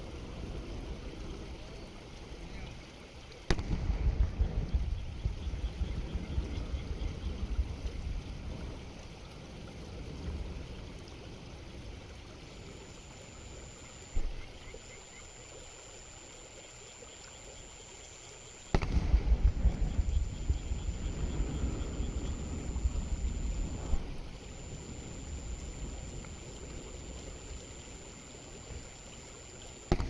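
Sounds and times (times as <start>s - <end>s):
faint high whine: 0.0s - 30.0s
fireworks low rumbling: 3.5s - 8.7s, 18.6s - 30.0s.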